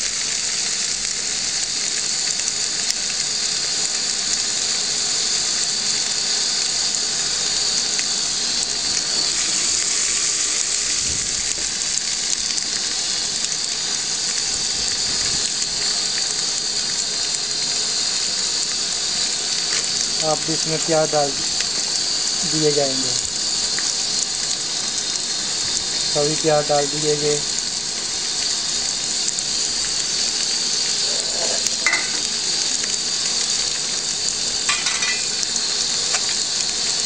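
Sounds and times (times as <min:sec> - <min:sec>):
paste sizzling in hot oil: 0:00.0 - 0:37.0.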